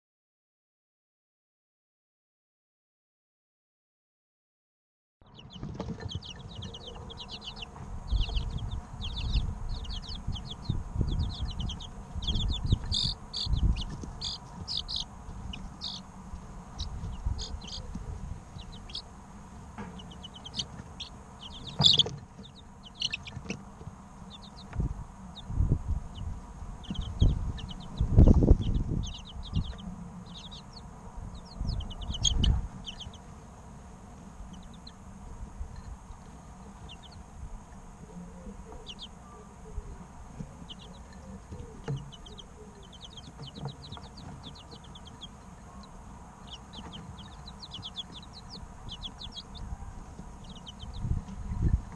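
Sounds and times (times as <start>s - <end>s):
chicks chirping: 5.2s - 51.9s.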